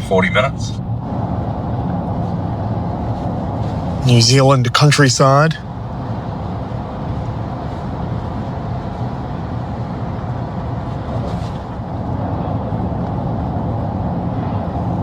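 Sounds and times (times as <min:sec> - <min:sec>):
car engine and tyre road noise: 0:00.0 - 0:11.0.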